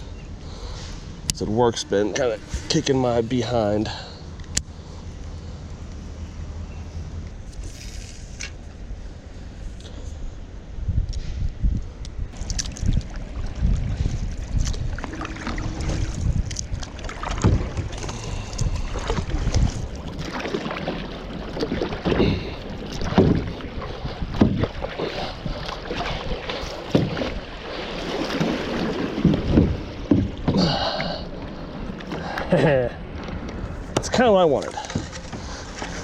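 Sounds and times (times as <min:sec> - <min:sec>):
water washing around boat: 0:12.3 - 0:36.0
paddle splashing in water: 0:12.4 - 0:36.0.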